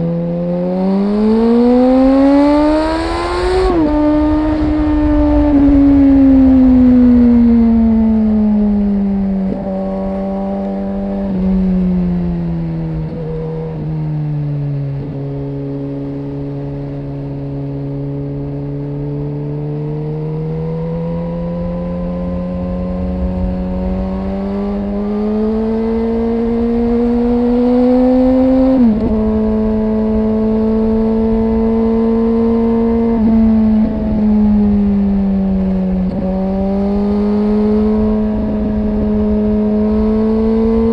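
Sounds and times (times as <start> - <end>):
motorcycle engine and exhaust: 0.0 - 40.9.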